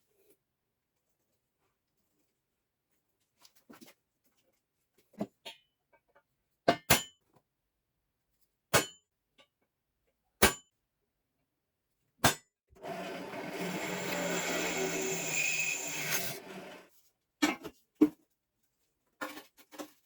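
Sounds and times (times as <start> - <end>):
file rasping on metal: 12.8 - 16.8.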